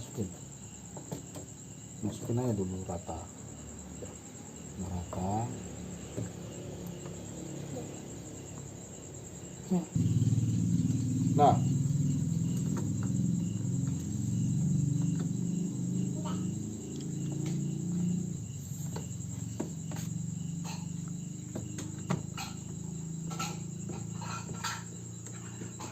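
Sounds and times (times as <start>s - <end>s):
crickets chirping: 0.0s - 25.9s
low hum: 10.0s - 19.4s.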